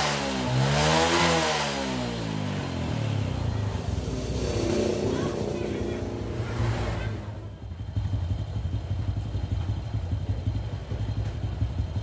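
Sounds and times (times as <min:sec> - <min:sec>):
small engine idling: 0:07.6 - 0:12.0.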